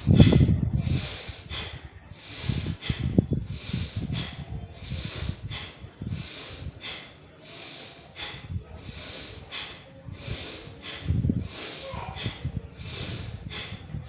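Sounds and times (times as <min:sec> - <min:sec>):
forceful breaths through nose: 0:00.0 - 0:14.0.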